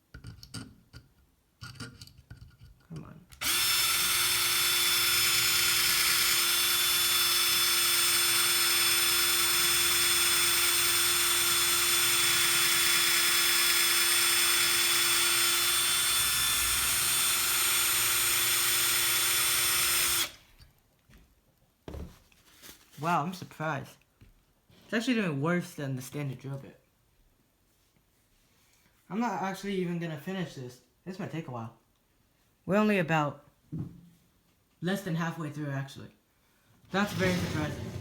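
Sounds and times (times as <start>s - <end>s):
power drill boring into metal: 3.4s - 20.4s, 37.0s - 38.0s.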